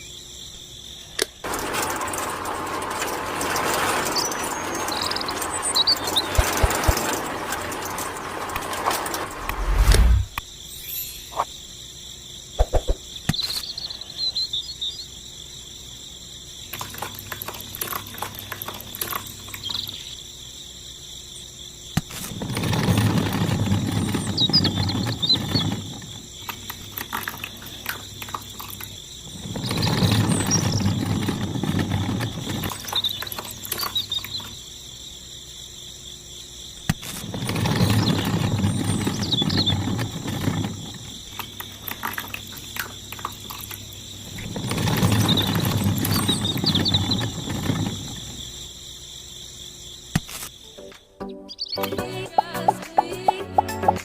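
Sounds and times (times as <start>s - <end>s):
crickets chirping: 0.0s - 54.0s
loud rushing rumbling noise: 6.4s - 10.4s.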